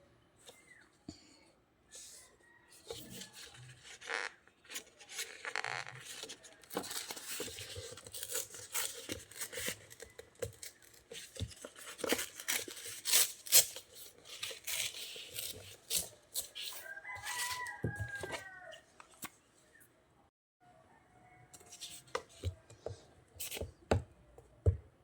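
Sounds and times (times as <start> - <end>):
paper rustling and tearing: 2.9 - 18.4.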